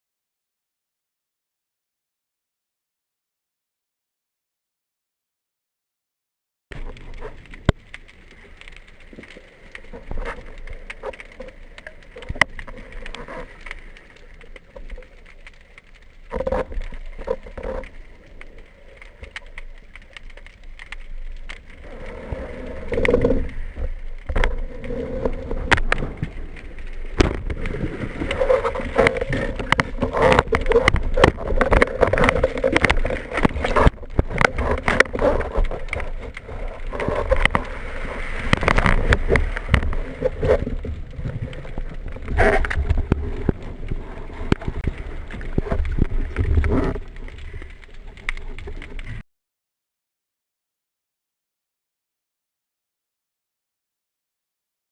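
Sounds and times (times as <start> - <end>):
water sloshing and gurgling: 6.7 - 49.2.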